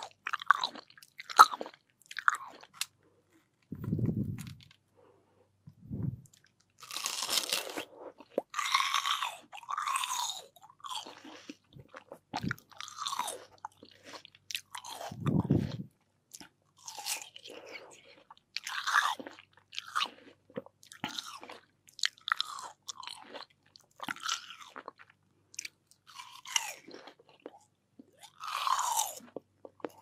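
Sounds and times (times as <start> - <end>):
low muffled thumps: 3.7 - 4.6, 5.7 - 6.3
watermelon chewing crunches: 6.4 - 30.0.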